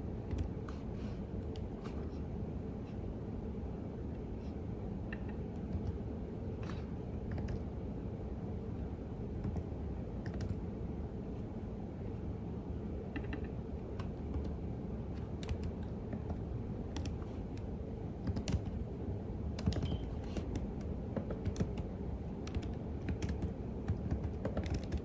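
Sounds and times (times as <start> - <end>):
keyboard typing: 6.7 - 7.7, 9.4 - 10.6, 13.2 - 18.8, 19.5 - 25.0.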